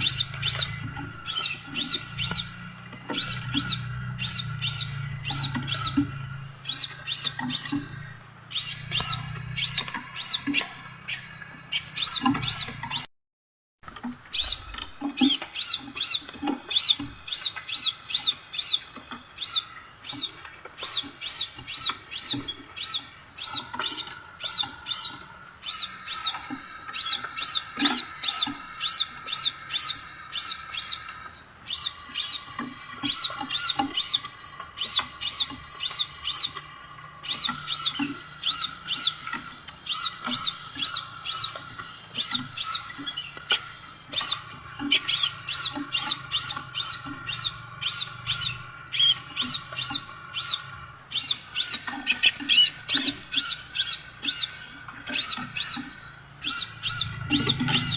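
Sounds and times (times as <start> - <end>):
faint bird twittering: 0.0 - 13.1, 13.8 - 57.9.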